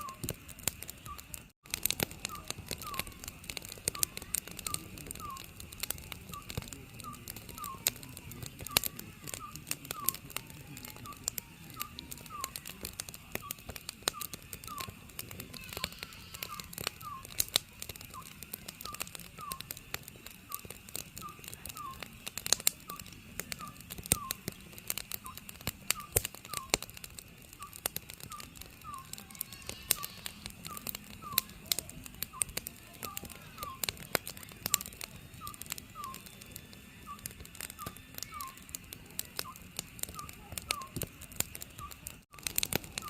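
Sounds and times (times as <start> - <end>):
owl calling: 0.0 - 0.2, 2.2 - 5.5, 6.3 - 19.7, 20.5 - 22.1, 22.8 - 24.6, 25.2 - 26.8, 27.6 - 31.6, 32.4 - 34.0, 34.7 - 36.4, 37.0 - 38.7, 39.4 - 41.0
wood fire crackling: 0.0 - 43.0.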